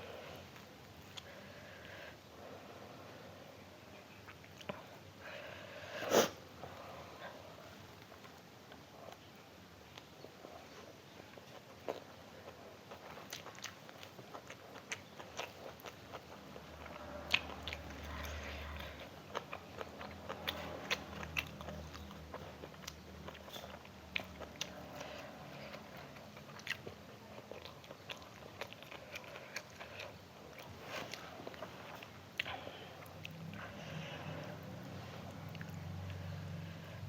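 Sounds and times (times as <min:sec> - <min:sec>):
person chewing food: 0:09.9 - 0:36.8.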